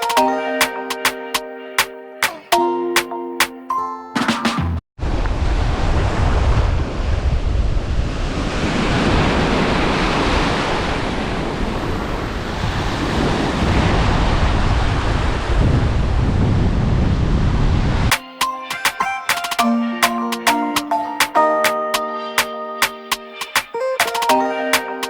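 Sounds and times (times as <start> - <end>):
wind buffeting microphone: 5.0 - 18.1
sea surf washing in: 5.0 - 18.2.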